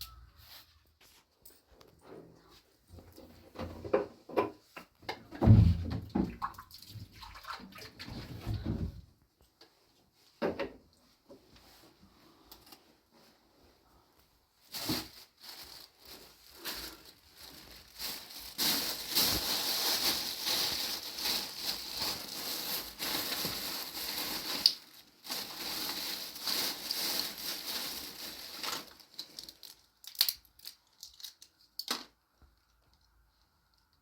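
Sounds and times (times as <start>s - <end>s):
material rustling and crunching: 14.5s - 31.4s.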